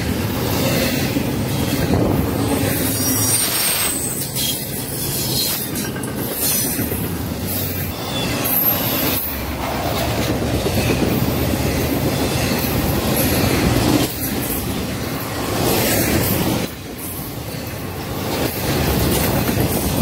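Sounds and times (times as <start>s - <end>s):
steel wheels rumbling on rails: 0.0s - 20.0s
high wheel squeals: 2.8s - 5.7s, 7.7s - 9.4s.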